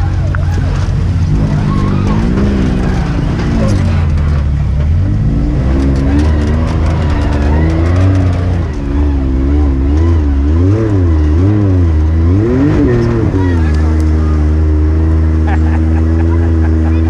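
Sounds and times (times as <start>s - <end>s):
utility vehicle engine revving: 0.0s - 17.0s.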